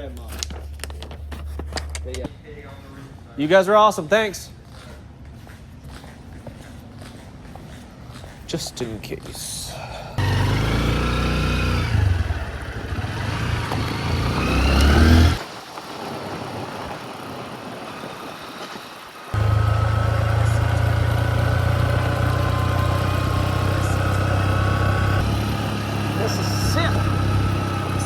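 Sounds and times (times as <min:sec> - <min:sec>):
motorcycle engine: 0:10.2 - 0:15.4, 0:17.1 - 0:28.0.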